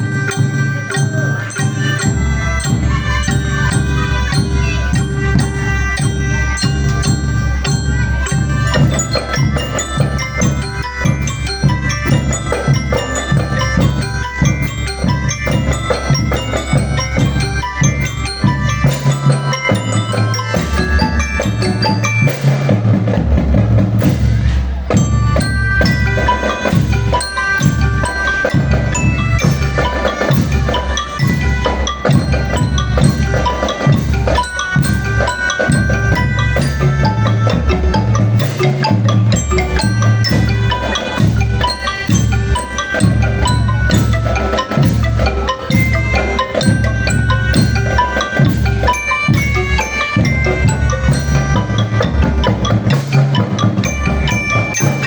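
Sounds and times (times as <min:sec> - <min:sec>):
glockenspiel melody: 0:00.0 - 0:55.0
steady drum beat: 0:00.0 - 0:55.0.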